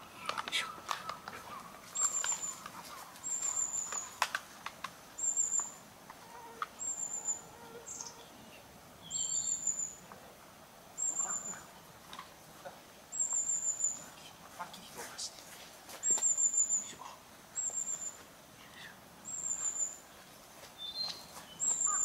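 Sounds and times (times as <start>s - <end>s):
high thin bird call: 0.5s - 4.2s, 20.8s - 22.0s.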